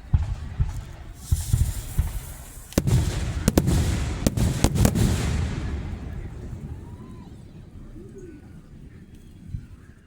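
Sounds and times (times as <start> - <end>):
firework shells booming: 0.0 - 7.9
sharp cracking firework reports: 0.0 - 8.0.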